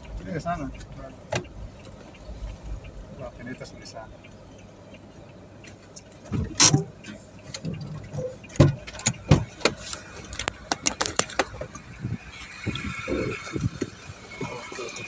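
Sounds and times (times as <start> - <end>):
sharp clicks and knocks: 0.0 - 3.5, 5.6 - 13.0.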